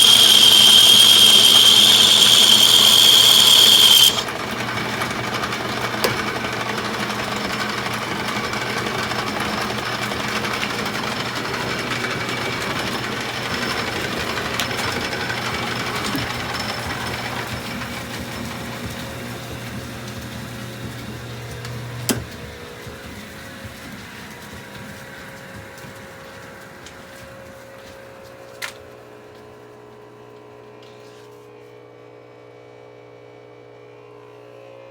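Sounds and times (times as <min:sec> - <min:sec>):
lathe winding down: 0:00.0 - 0:23.4
metal lathe running: 0:00.0 - 0:23.4.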